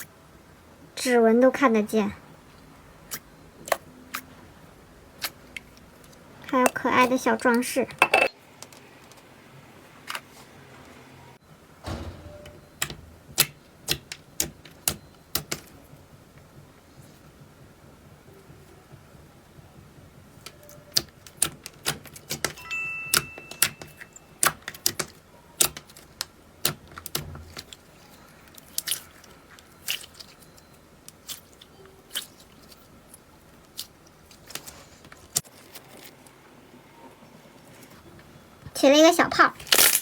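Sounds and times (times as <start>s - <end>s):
short high tone: 22.6s - 23.6s.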